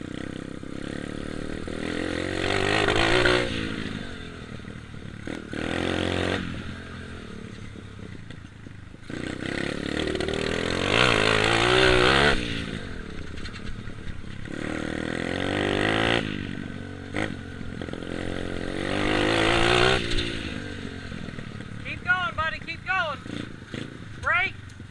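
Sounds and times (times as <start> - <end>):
dirt bike engine revving: 0.0 - 24.9.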